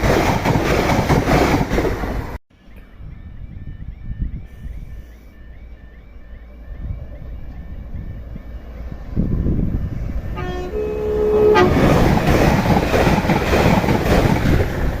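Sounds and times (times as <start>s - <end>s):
train passing at speed: 0.0s - 15.0s
two-note train horn: 10.2s - 12.0s.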